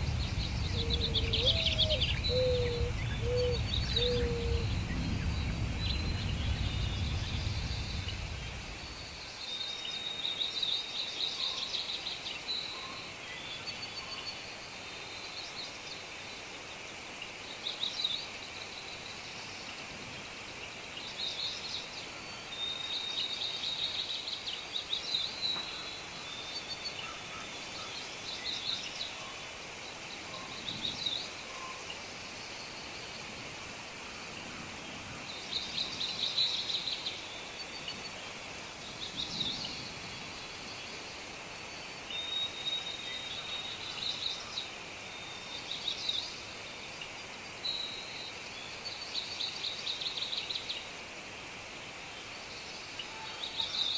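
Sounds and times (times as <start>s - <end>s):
low rumble: 0.0s - 9.2s
background hiss: 0.0s - 53.9s
songbirds chirping: 0.0s - 53.9s.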